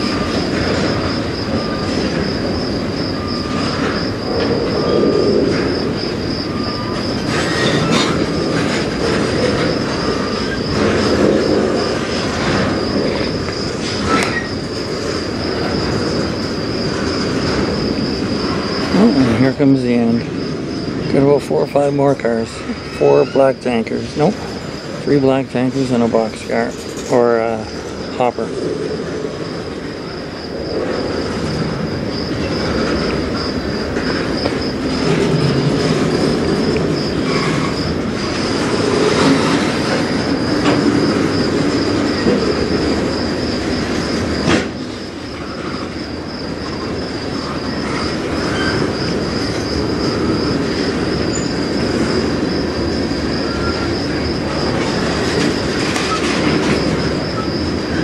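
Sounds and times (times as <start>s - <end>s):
steady high whine: 0.0s - 58.0s
train wheels rumbling on rails: 0.0s - 58.0s.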